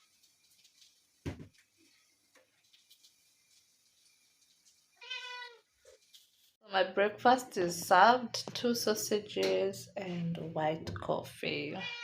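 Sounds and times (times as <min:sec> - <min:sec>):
kitten meowing: 0:05.0 - 0:05.6.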